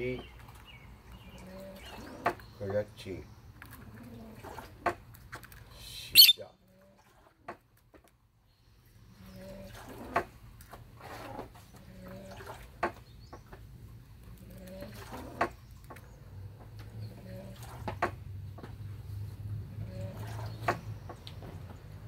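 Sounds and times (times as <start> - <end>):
faint low bird calls: 6.2 - 6.5.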